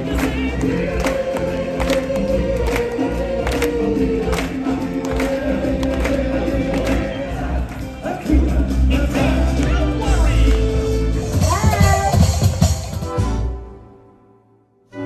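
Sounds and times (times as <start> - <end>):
choir singing long notes: 0.0 - 11.5
steady drum beat: 0.0 - 13.4.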